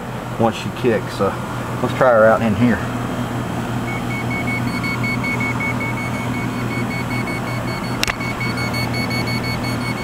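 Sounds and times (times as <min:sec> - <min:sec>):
voltage tester beeping rapidly: 0:03.9 - 0:10.0
sharp click: 0:08.0 - 0:08.2.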